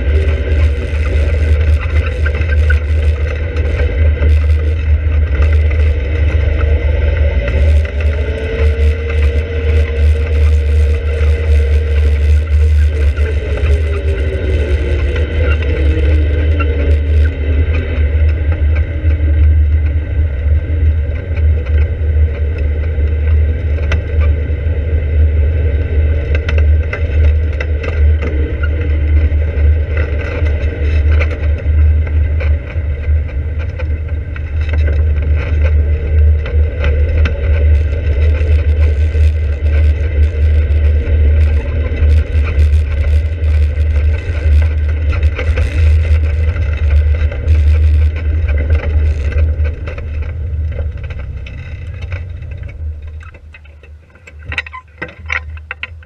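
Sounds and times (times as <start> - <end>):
low rumble: 0.0 - 56.0
sports car engine running: 0.0 - 56.0
small rattles: 26.3 - 56.0.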